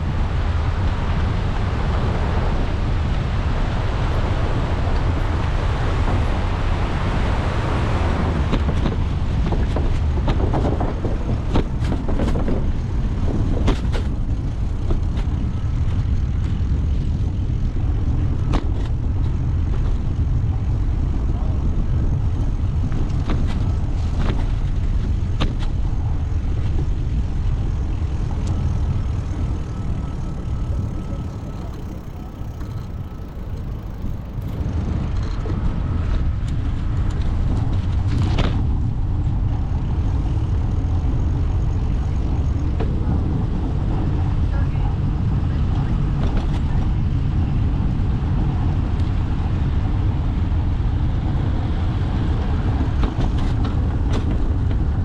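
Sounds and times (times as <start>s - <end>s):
bicycle road rumble: 0.0s - 55.0s
wind buffeting microphone: 0.0s - 55.0s.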